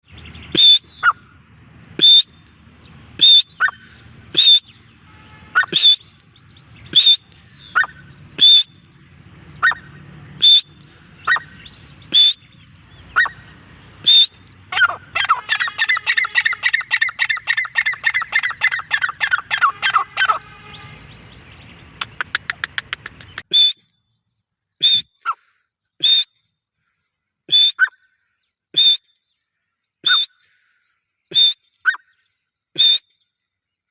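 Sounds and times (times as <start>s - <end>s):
francolin calling: 0.1s - 1.3s, 2.0s - 2.5s, 3.2s - 8.9s, 9.6s - 23.8s.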